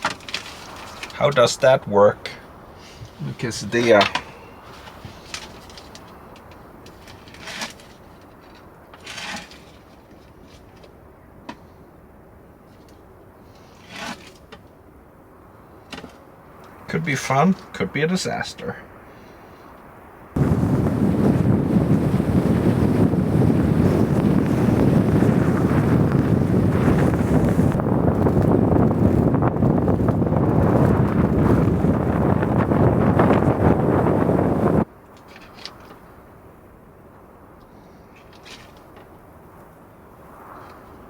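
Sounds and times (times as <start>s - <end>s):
rustling scrapes: 0.0s - 1.5s, 2.8s - 11.0s, 12.6s - 14.8s, 35.2s - 36.2s, 37.8s - 39.2s
storm wind on microphone: 20.0s - 34.9s.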